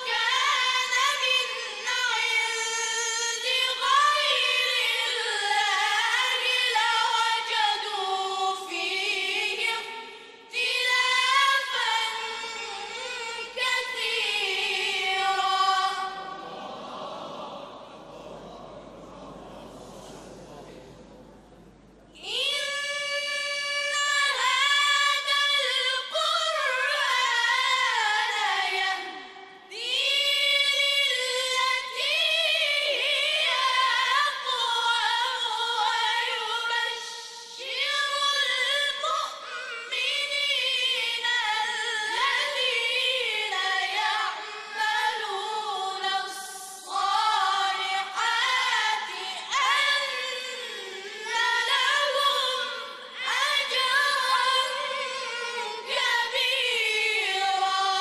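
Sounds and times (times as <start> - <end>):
choir singing: 13.8 - 20.8.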